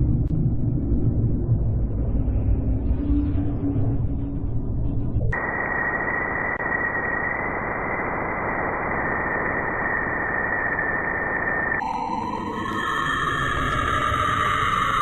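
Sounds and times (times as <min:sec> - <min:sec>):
dense electromagnetic hiss: 0:05.4 - 0:11.8
tonal space sound: 0:11.8 - 0:15.0.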